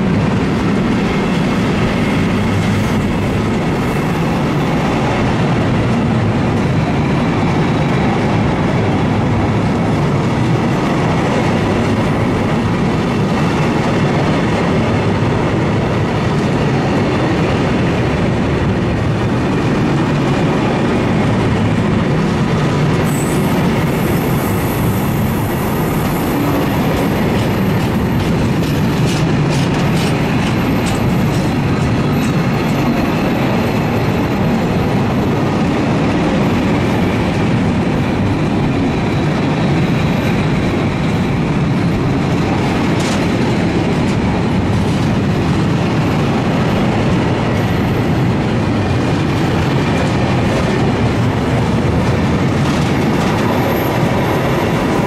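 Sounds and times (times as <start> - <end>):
train wheels rumbling on rail: 0.0 - 55.0
high wheel squeal: 23.0 - 27.7.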